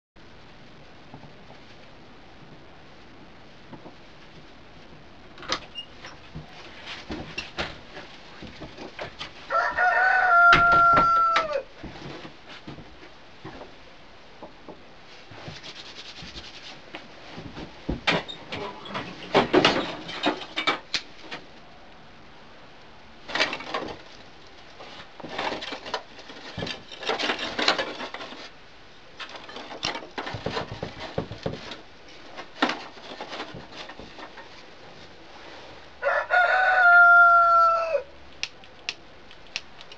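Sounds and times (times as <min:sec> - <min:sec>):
rooster crowing: 0:09.5 - 0:11.7, 0:36.0 - 0:38.1.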